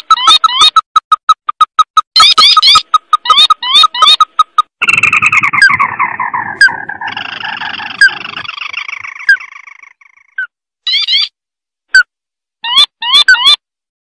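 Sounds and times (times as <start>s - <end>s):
crake calling: 1.9s - 11.3s.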